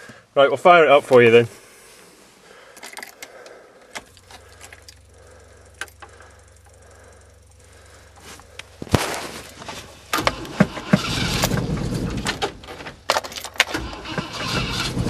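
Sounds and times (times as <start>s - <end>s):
steady low hum: 0.0s - 15.0s
keys rattling: 2.7s - 6.7s, 12.9s - 13.8s.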